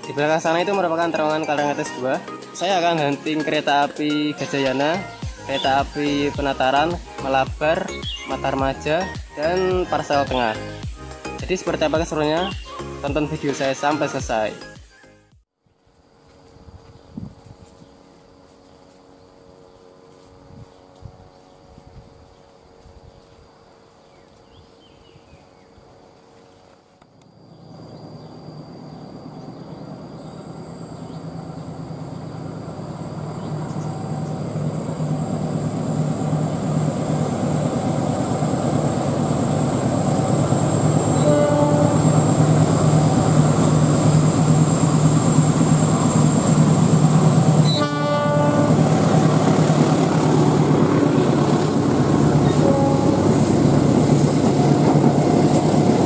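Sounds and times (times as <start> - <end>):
diesel locomotive engine rumble: 0.0 - 14.5, 15.8 - 56.0
train horn blast: 41.0 - 43.1, 47.6 - 49.5, 52.1 - 54.0.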